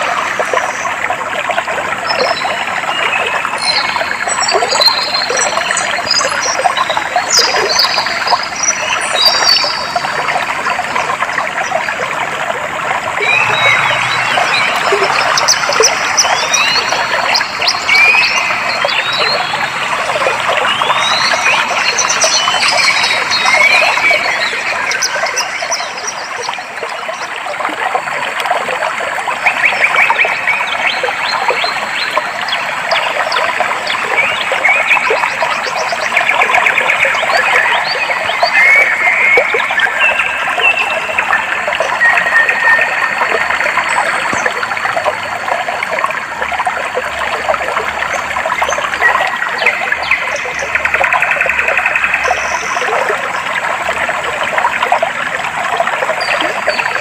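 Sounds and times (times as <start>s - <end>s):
water trickling: 0.0s - 57.0s
birds chirping and trilling: 13.1s - 26.8s.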